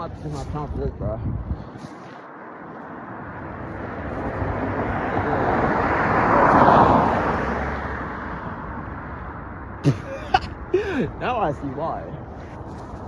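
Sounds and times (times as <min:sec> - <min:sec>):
vehicle passing close by: 0:01.7 - 0:11.2.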